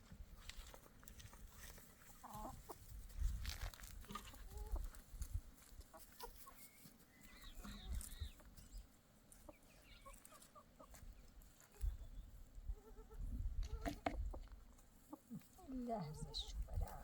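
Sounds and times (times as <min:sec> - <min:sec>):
chickens clucking faintly: 0:04.1 - 0:17.0.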